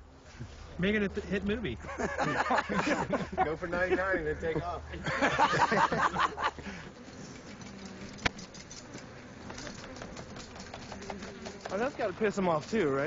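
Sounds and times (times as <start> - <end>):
bees buzzing hum: 0.0 - 13.0
rustling: 6.4 - 13.0.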